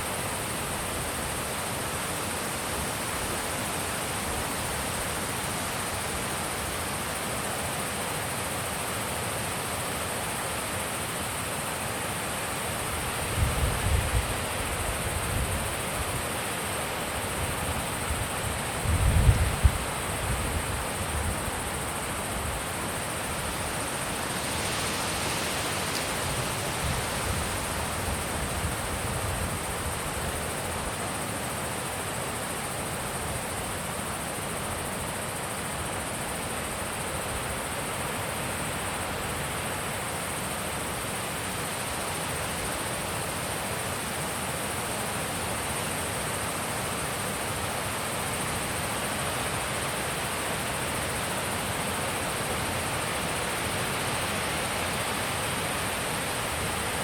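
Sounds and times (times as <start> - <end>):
thin high-pitched hiss: 0.0 - 57.0
wind gusts on microphone: 13.0 - 16.2, 17.3 - 22.6, 24.4 - 30.8.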